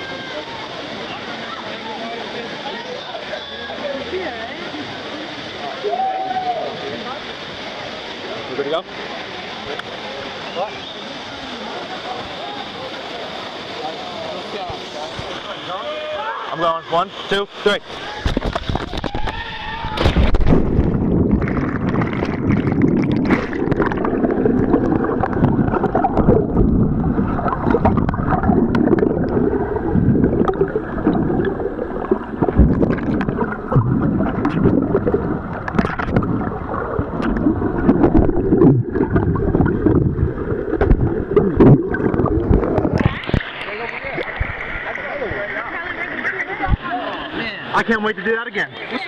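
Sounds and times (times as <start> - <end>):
muffled underwater rushing and gurgling: 0.0 - 48.9
water splash: 18.2 - 44.9.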